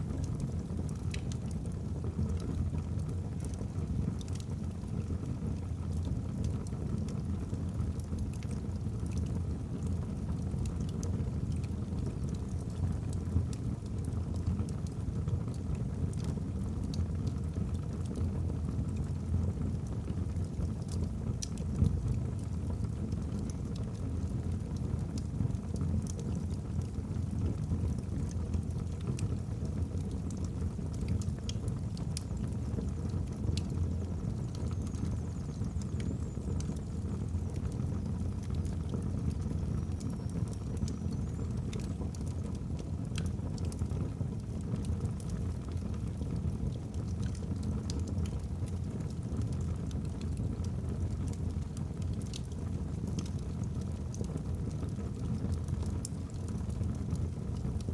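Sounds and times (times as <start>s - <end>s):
logs crackling and popping: 0.3s - 7.2s, 9.8s - 13.3s, 19.0s - 57.9s
fire flames rumbling: 9.5s - 57.9s.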